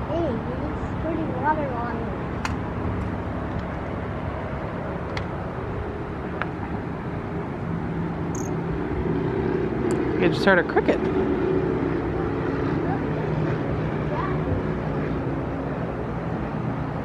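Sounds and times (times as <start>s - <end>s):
wind and water noise: 0.0s - 17.0s
cricket chirp: 8.4s - 8.6s.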